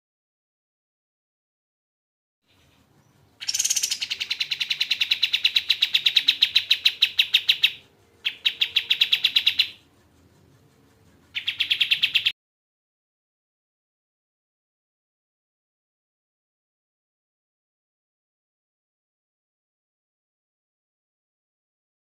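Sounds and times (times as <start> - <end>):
songbird trilling: 2.5 - 9.8, 11.4 - 12.3.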